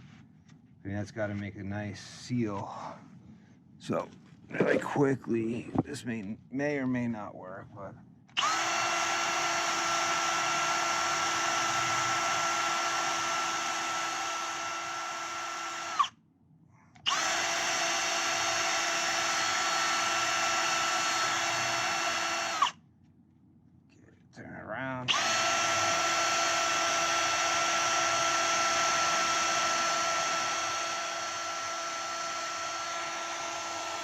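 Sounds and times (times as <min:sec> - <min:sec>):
electric power tool whining: 0:08.4 - 0:16.1, 0:17.0 - 0:22.8, 0:25.1 - 0:34.0.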